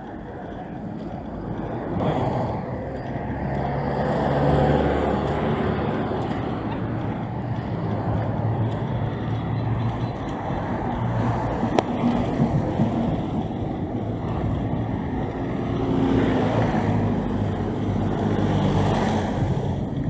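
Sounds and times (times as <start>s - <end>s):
city street noise: 0.0s - 20.0s
vehicle engine running: 0.0s - 20.0s.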